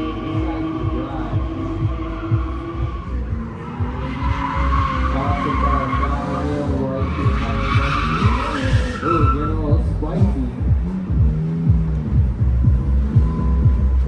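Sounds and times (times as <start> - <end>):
tyres squealing: 0.0 - 10.5
car engine revving: 0.0 - 14.0.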